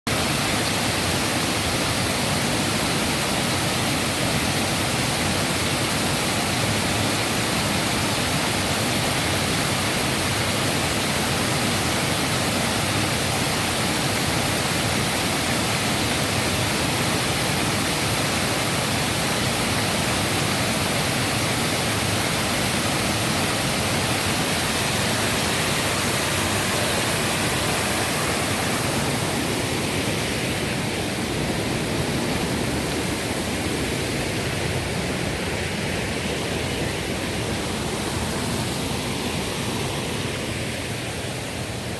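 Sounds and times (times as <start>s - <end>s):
waterfall roaring: 0.1s - 41.9s.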